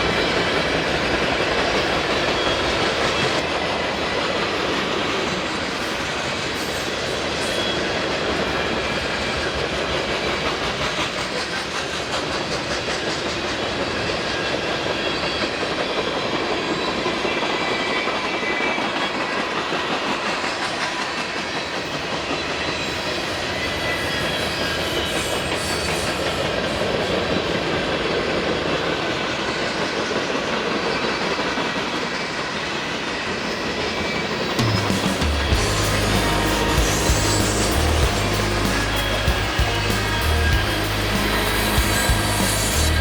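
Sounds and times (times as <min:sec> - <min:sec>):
freight train rumbling past: 0:00.0 - 0:43.0
faint high squeals: 0:22.5 - 0:27.5.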